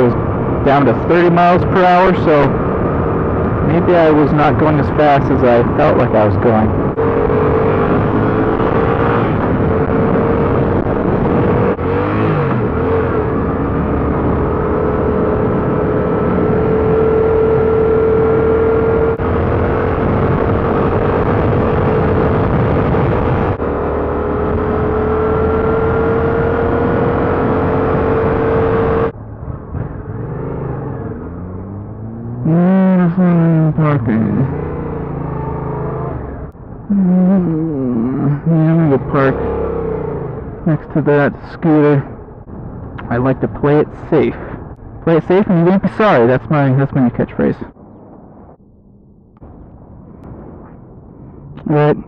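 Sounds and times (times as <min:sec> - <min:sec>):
wind rushing on microphone: 0:00.0 - 0:30.6.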